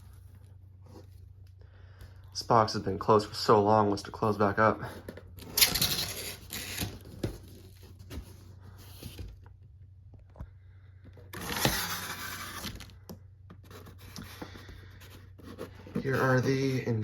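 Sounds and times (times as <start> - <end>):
cardboard rustling and scraping: 4.2 - 9.6, 11.2 - 17.0.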